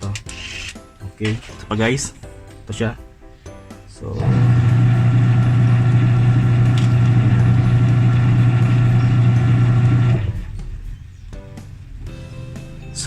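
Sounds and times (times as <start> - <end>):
electrical motor hum: 4.1 - 10.8.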